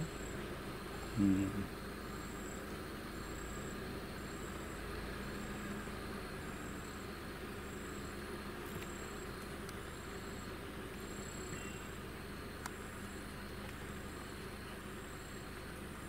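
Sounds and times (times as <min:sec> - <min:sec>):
insects chirping: 0:00.0 - 0:16.0
low voice: 0:01.1 - 0:01.7.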